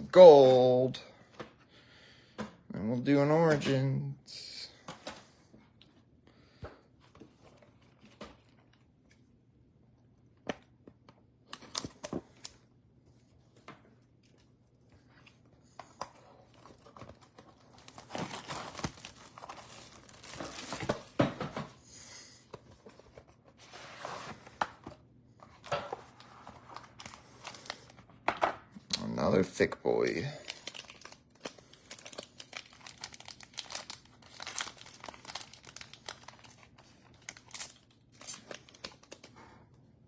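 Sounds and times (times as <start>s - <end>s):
plastic wrapping crinkling and tearing: 16.4s - 21.2s, 25.6s - 28.0s, 29.9s - 39.4s.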